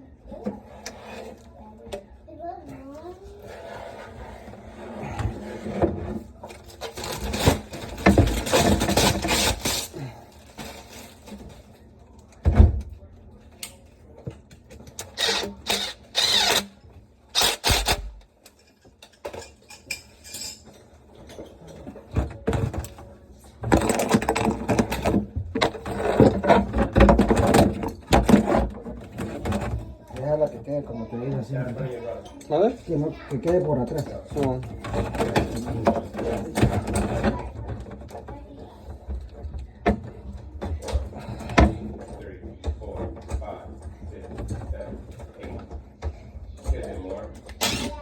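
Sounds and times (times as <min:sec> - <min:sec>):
tools and parts clattering: 0:05.0 - 0:12.9, 0:13.5 - 0:30.7, 0:31.4 - 0:48.0.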